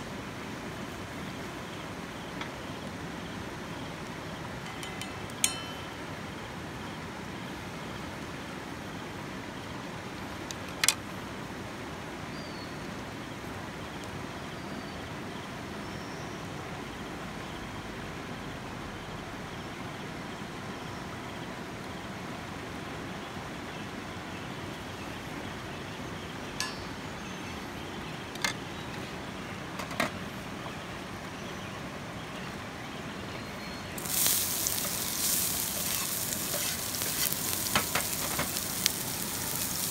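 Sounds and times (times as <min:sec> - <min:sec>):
sharp clinks: 0:04.7 - 0:06.1
creek water flowing: 0:33.9 - 0:39.9.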